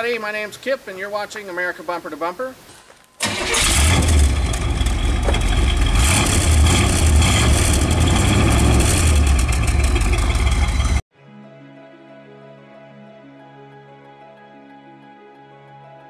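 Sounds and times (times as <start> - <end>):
car engine revving: 3.2 - 11.0.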